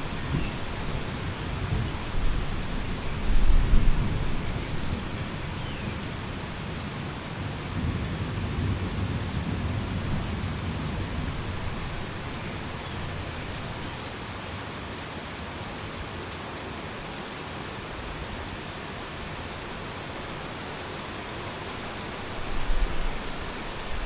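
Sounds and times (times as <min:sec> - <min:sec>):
thunder rumble: 0:00.0 - 0:05.6, 0:07.4 - 0:13.8
heavy rain falling: 0:00.0 - 0:24.0.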